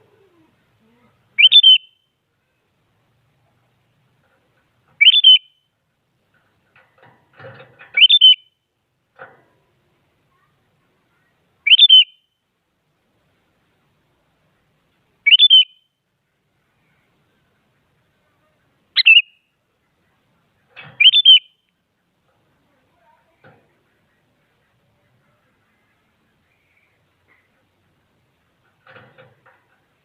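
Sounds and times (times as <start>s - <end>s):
bird singing whistled phrases: 1.4s - 2.1s, 5.0s - 5.6s, 8.0s - 8.5s, 11.6s - 12.3s, 15.2s - 15.9s, 19.0s - 19.4s, 21.0s - 21.7s.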